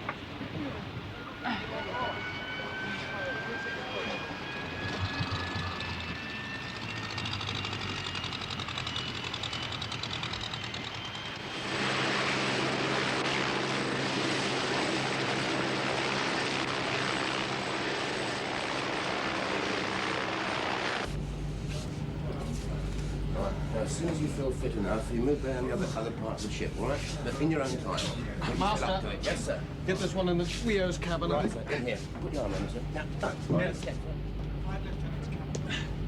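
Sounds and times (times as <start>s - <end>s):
turbine whine: 0.0s - 36.0s
helicopter engine and rotor: 0.1s - 22.3s.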